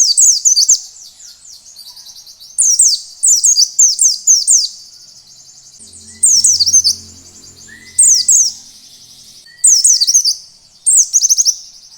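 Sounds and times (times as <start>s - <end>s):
bird singing high falling notes: 5.8s - 10.8s.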